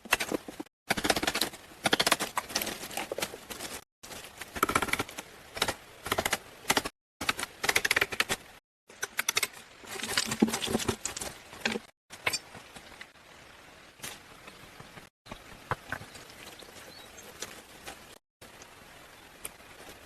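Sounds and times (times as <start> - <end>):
rapid clicking and knocking: 0.0 - 2.4.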